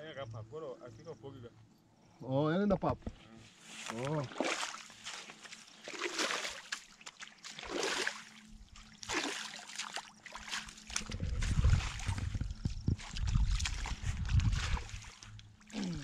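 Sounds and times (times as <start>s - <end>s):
water splashing: 4.3s - 16.0s
heavy low rumble: 11.0s - 15.0s.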